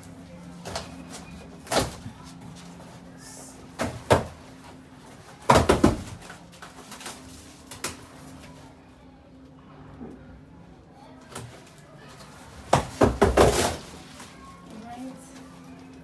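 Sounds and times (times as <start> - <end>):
cardboard packaging knocks: 5.4 - 6.3, 12.7 - 14.0.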